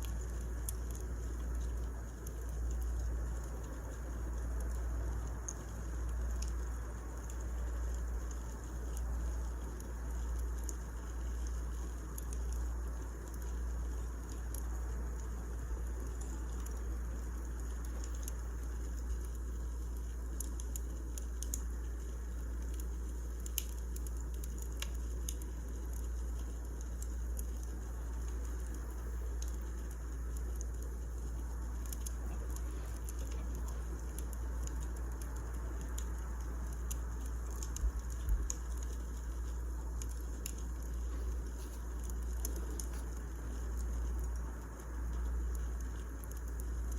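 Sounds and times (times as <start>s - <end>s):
fire low rumble: 0.0s - 46.9s
wood fire crackling and popping: 0.0s - 46.9s.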